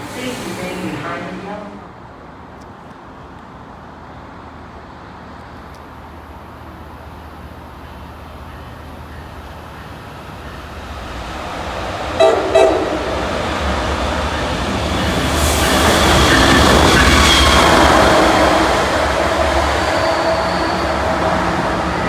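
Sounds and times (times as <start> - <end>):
train rumble: 0.0 - 22.0
locomotive horn blasts: 12.2 - 13.3.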